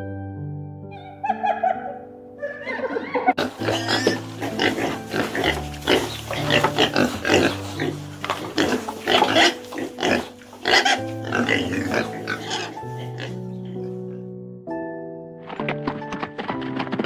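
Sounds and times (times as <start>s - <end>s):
background music with low notes: 0.0s - 17.0s
pig grunting: 3.4s - 14.1s.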